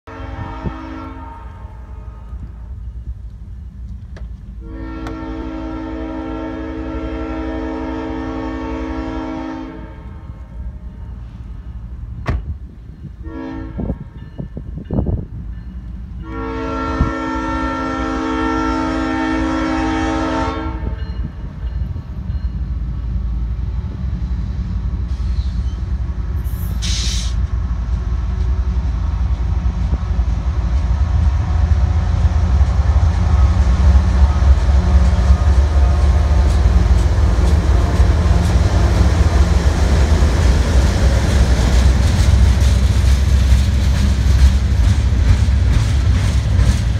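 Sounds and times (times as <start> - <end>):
train rumbling on rails: 0.0 - 46.9
locomotive horn blasts: 0.1 - 2.4, 4.6 - 10.5, 13.2 - 14.2, 16.2 - 21.3.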